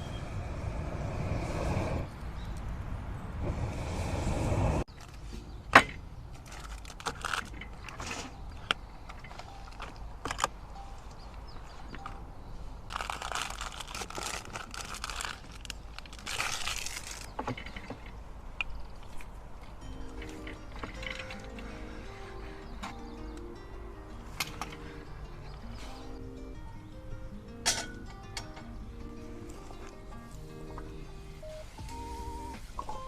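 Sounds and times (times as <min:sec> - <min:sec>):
handling clicks and knocks: 0:04.9 - 0:12.3, 0:17.3 - 0:19.0, 0:19.6 - 0:21.7
crinkling rustle: 0:06.3 - 0:21.7.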